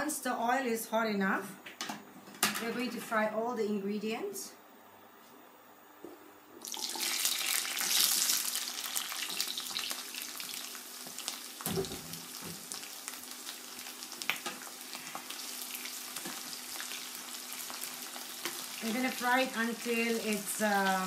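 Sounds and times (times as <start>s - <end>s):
onions sizzling in hot oil: 6.6s - 21.0s.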